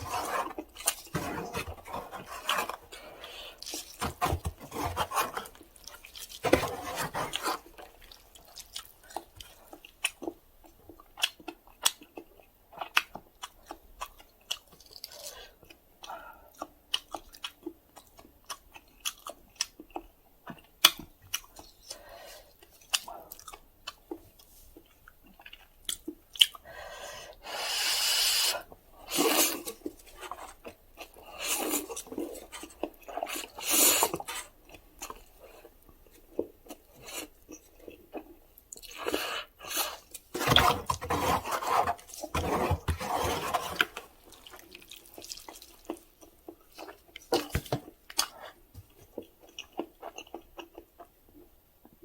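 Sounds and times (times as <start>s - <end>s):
wet chewing: 29.2s - 51.5s
noodle slurping: 38.9s - 46.0s.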